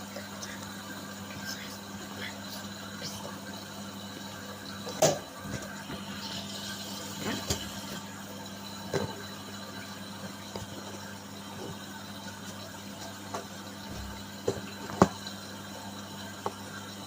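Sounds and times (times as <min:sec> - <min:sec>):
washing machine humming: 0:00.0 - 0:17.0
washing machine knocks: 0:13.9 - 0:15.2.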